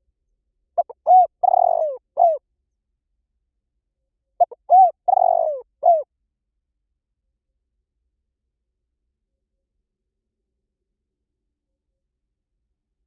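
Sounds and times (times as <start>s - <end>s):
dove cooing: 0.8s - 2.4s, 4.4s - 6.1s.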